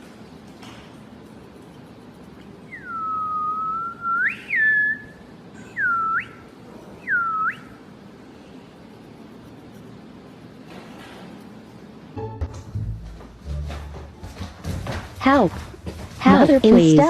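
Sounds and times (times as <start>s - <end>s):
person whistling tones: 2.7s - 7.8s.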